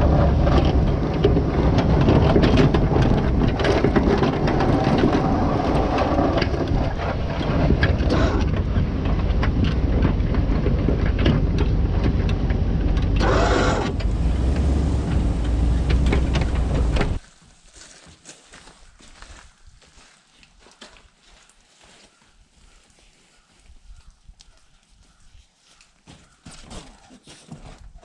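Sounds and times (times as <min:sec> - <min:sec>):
sharp clicks and rattles: 0:00.0 - 0:17.2
vehicle engine running: 0:00.0 - 0:17.2.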